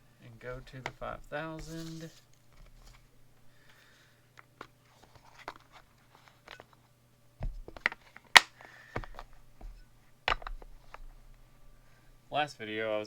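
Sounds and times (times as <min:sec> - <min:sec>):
hard objects clicking and knocking: 0:04.4 - 0:06.8, 0:07.4 - 0:11.8.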